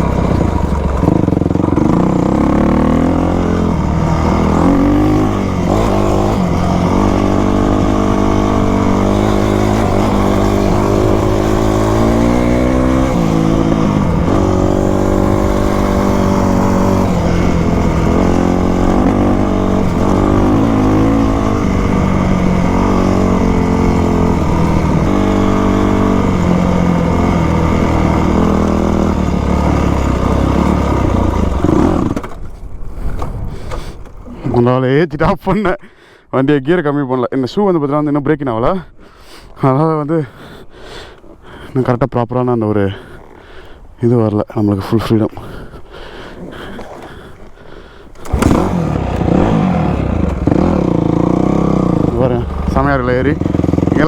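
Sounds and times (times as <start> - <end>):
dirt bike engine revving: 0.0 - 32.4, 46.1 - 54.0.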